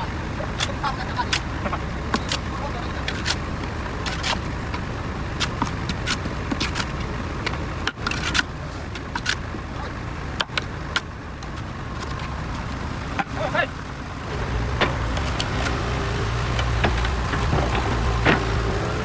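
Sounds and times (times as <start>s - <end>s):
heavy machine engine running: 0.0s - 19.0s
sharp metallic clanks and knocks: 0.5s - 9.5s, 14.2s - 19.0s.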